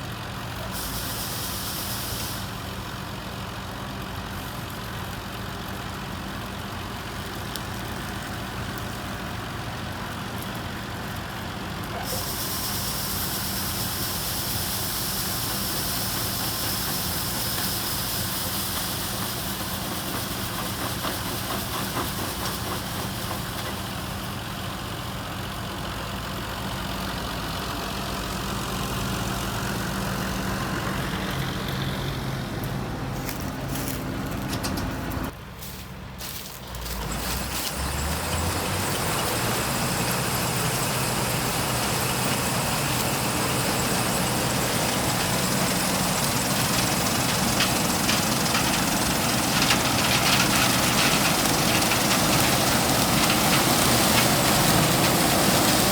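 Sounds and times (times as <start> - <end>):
heavy farm machinery engine running: 0.0 - 55.9
loud high rushing hiss: 0.6 - 2.9, 12.0 - 24.2.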